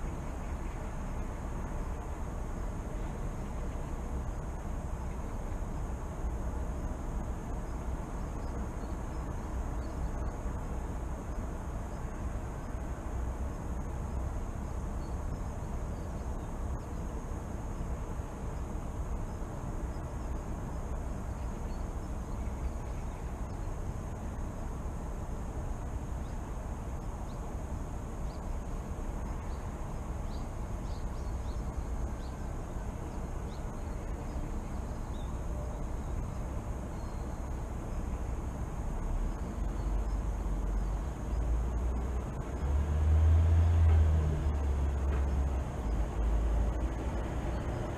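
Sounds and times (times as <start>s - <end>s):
distant traffic rumble: 0.0s - 47.9s
faint bird chirps: 7.5s - 10.5s, 18.4s - 24.4s, 29.2s - 38.3s
vehicle approaching: 38.8s - 47.9s.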